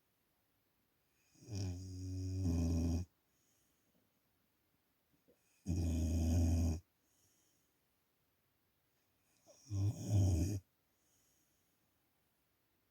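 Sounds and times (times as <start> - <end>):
dog snoring: 1.2 - 3.1, 5.4 - 6.9, 9.4 - 10.6.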